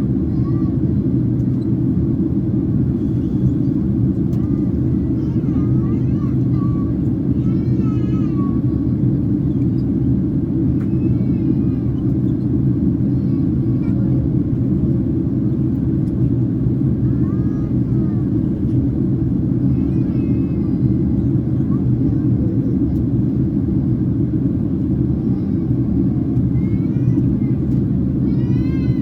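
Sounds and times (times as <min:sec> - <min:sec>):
airplane cabin roar: 0:00.0 - 0:29.0
faint high voice: 0:04.3 - 0:08.9, 0:13.0 - 0:14.4, 0:17.0 - 0:18.7, 0:19.7 - 0:23.1, 0:26.4 - 0:29.0.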